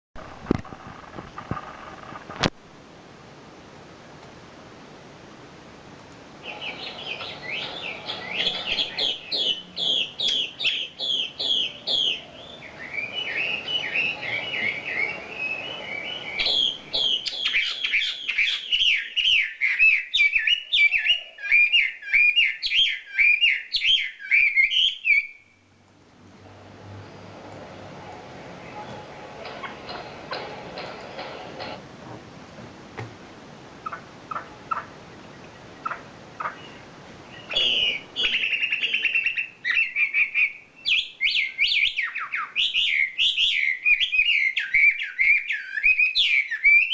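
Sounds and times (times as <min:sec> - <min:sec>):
bird whistling and twittering: 0:06.4 - 0:25.6, 0:35.8 - 0:46.9.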